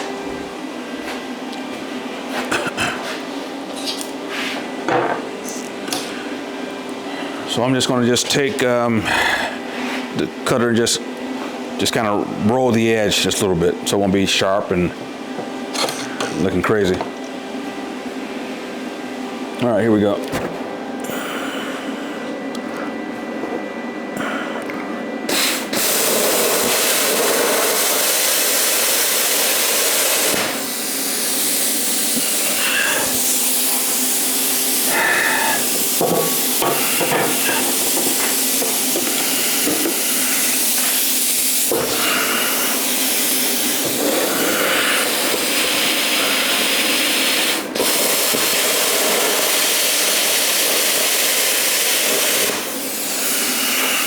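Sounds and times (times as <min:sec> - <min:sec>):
plasma cutter hissing: 0:25.3 - 0:54.0.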